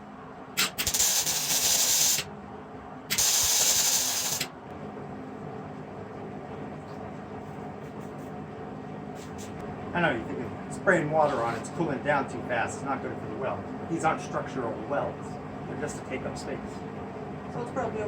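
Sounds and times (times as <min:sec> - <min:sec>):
water hissing on hot metal: 0:00.6 - 0:02.2, 0:03.1 - 0:04.5.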